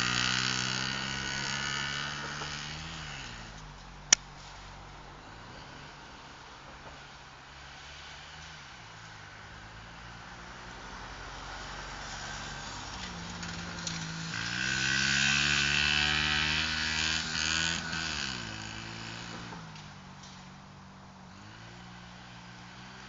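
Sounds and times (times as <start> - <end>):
pit bike engine revving: 0.0 - 3.7, 11.4 - 20.4, 21.3 - 23.0.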